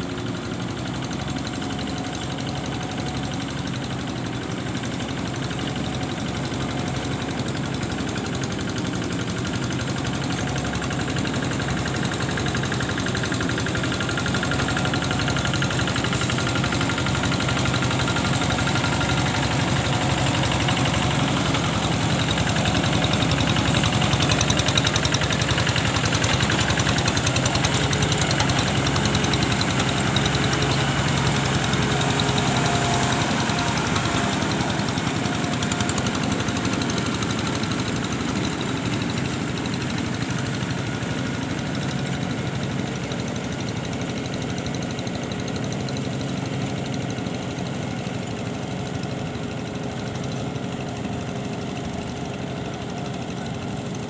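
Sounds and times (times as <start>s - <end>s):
engine chugging: 0.0s - 54.0s.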